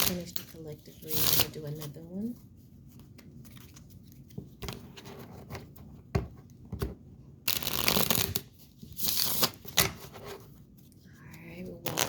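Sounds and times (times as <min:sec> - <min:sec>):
cards shuffling: 0:11.8 - 0:12.0.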